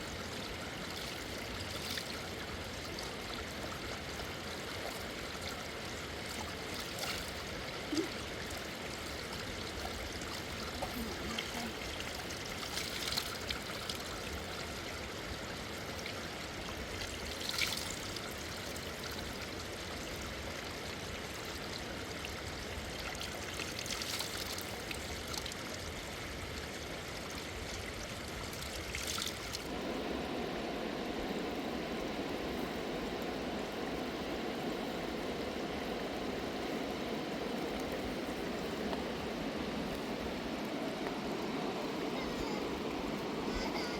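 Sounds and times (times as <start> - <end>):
water splashes: 0.0 - 14.8, 15.9 - 19.6, 22.8 - 26.2, 27.6 - 31.4
river water rushing: 27.0 - 43.9.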